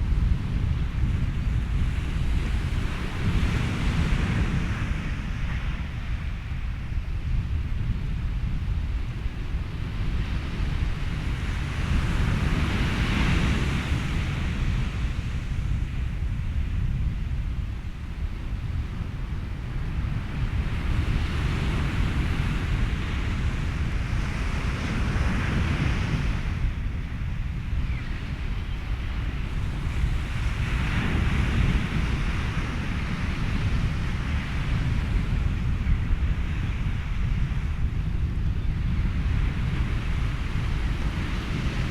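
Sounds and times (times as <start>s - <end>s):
wind: 0.0s - 41.9s
ocean waves rumbling: 8.6s - 41.9s.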